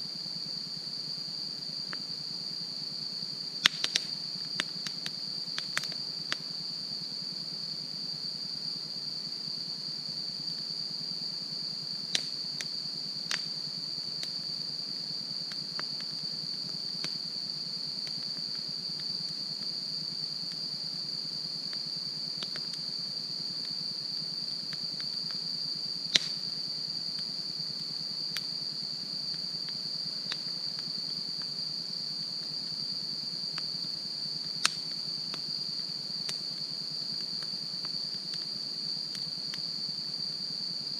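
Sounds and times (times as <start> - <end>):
campfire crackling and popping: 3.6 - 6.4, 12.1 - 12.7, 13.3 - 13.6, 17.0 - 17.2, 22.4 - 22.8, 26.1 - 26.5, 29.8 - 30.9, 34.5 - 35.4.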